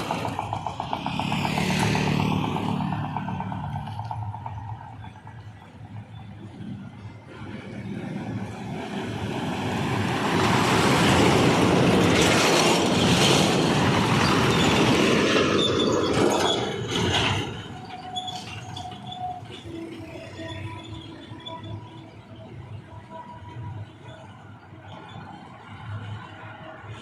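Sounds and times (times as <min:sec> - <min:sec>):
heavy truck passing: 0:00.0 - 0:21.6.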